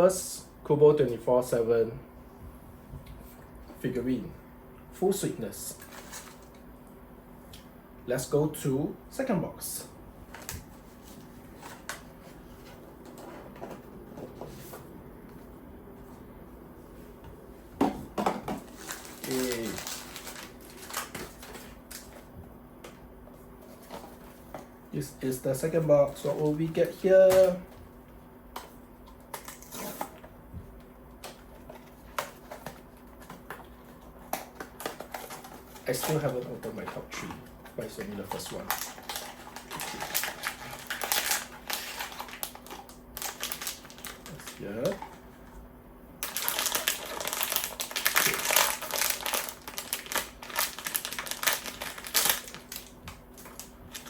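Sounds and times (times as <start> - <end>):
wrapper and cardboard crinkling: 18.6 - 22.2, 37.8 - 45.2, 46.2 - 54.0
packaging rustling: 18.6 - 22.3, 31.2 - 37.1, 37.7 - 45.3, 46.2 - 54.0.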